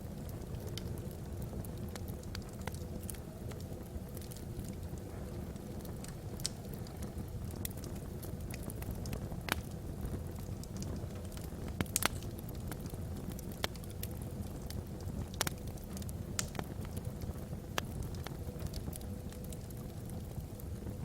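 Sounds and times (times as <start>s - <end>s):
fire crackling and popping: 0.0s - 21.0s
low rumble of flame: 0.0s - 21.0s.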